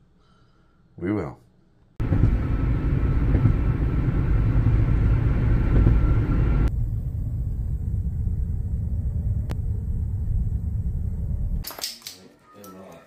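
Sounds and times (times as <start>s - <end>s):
car rumbling on the road: 2.0s - 11.6s.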